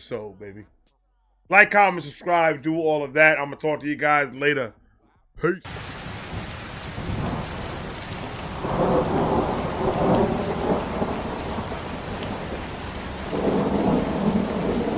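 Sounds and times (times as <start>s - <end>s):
steady rain: 5.7s - 14.9s
rolling thunder: 5.8s - 14.9s.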